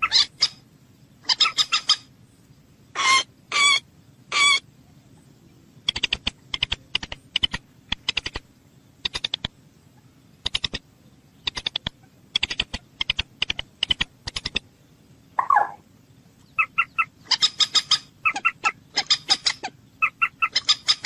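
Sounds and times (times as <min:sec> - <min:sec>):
bird clicking calls: 0:05.8 - 0:09.6, 0:10.4 - 0:10.8, 0:11.4 - 0:14.7, 0:15.4 - 0:15.8, 0:16.4 - 0:21.0.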